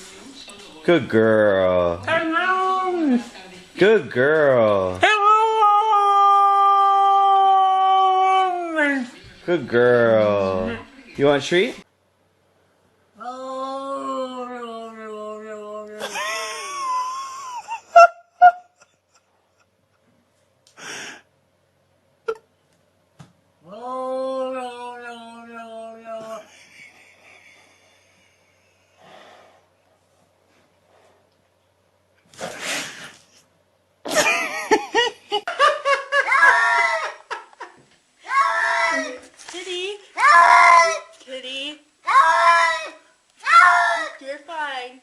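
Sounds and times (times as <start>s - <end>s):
breathy puff: 32.3s - 33.4s.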